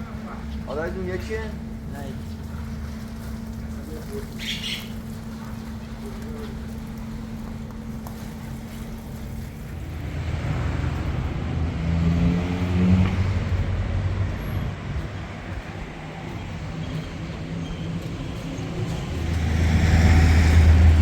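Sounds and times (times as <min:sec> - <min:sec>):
traffic rumble: 0:00.0 - 0:21.0
vehicle engine passing by: 0:09.7 - 0:15.4, 0:16.2 - 0:21.0.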